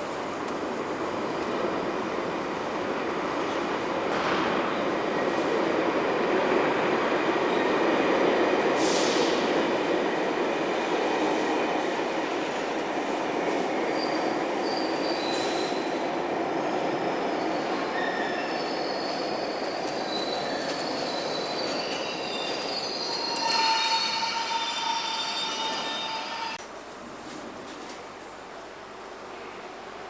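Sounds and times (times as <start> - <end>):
train running on rails: 0.0 - 30.0
train wheel squeals: 13.5 - 16.0, 16.9 - 26.6.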